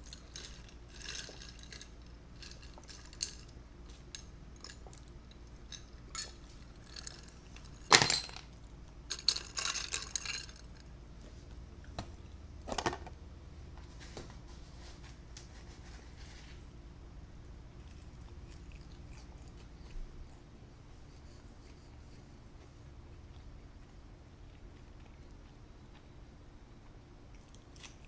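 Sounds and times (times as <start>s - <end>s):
cutlery clattering on dishes: 7.9s - 8.4s.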